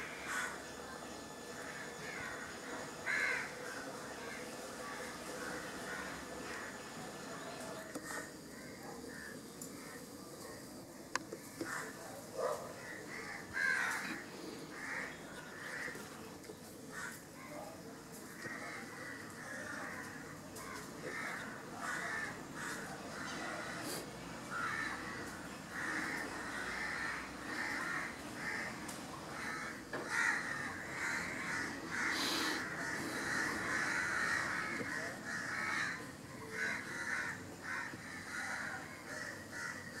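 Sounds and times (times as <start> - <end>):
birds harsh calls: 0.0 - 10.1, 11.4 - 17.4, 18.3 - 40.0.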